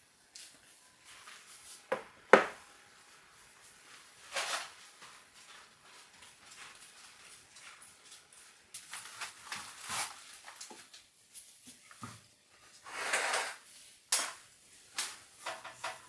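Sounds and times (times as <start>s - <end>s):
sharp knocks: 1.9s - 2.6s
short scrape or rustle: 12.9s - 13.7s.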